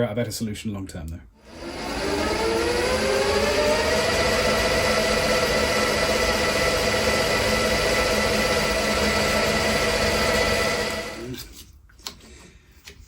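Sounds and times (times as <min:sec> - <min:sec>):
milling machine whining: 0:01.4 - 0:11.4.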